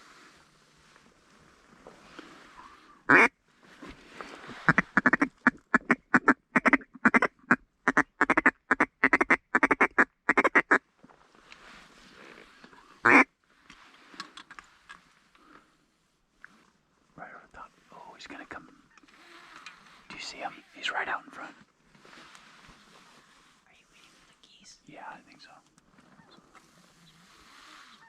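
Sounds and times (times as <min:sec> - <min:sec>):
waterfowl call: 0:02.6 - 0:03.3, 0:04.6 - 0:07.3, 0:13.0 - 0:13.3.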